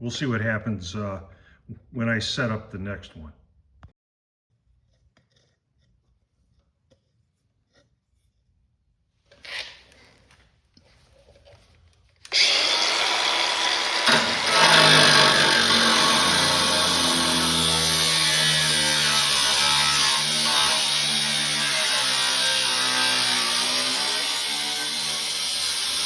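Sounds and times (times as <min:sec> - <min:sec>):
power tool whirring: 0:12.2 - 0:26.0.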